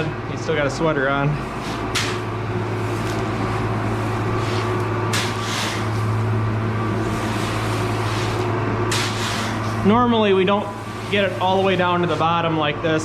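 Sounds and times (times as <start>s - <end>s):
auger motor humming: 0.0s - 13.0s
shovel scraping corn on metal: 4.4s - 6.1s, 7.0s - 9.8s.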